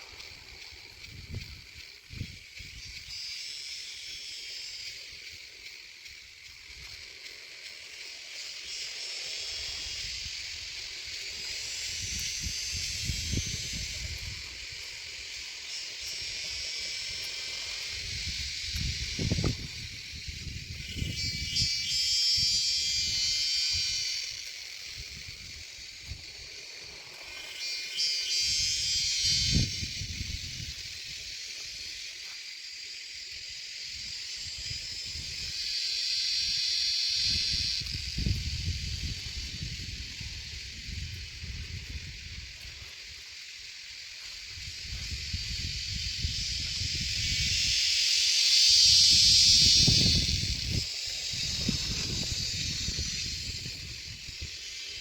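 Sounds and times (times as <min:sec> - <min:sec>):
nestlings begging with raspy calls: 0:27.3 - 0:31.4, 0:45.1 - 0:55.0.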